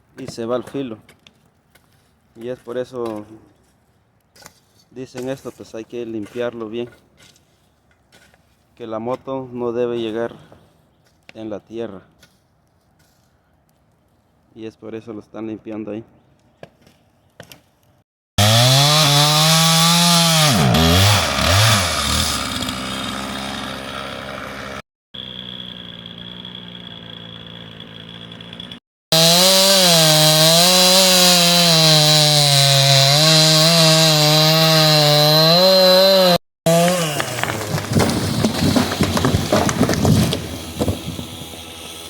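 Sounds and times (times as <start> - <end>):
chainsaw running: 18.4 - 42.0.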